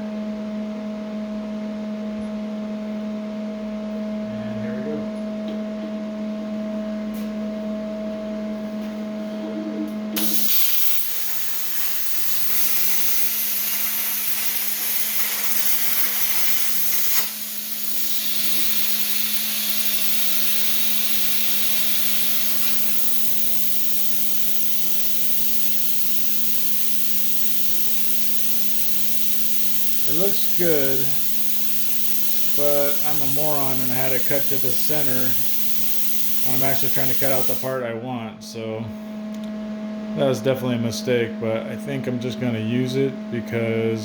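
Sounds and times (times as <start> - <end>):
electrical hum: 0.0 - 44.0
plasma cutter hissing: 10.2 - 37.8.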